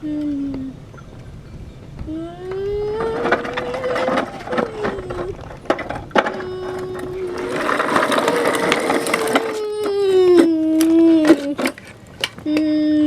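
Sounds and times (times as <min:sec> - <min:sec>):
toy truck whining engine tone: 0:02.2 - 0:11.9.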